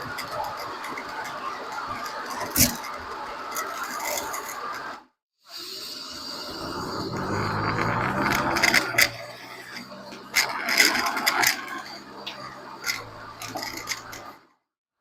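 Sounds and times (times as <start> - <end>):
low road hum: 6.0 - 14.4
wheel clicking and rattling: 6.4 - 14.4.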